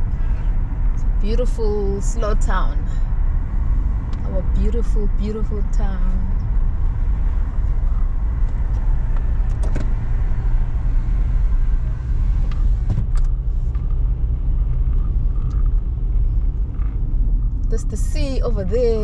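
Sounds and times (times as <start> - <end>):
road and engine rumble in car: 0.0 - 19.0.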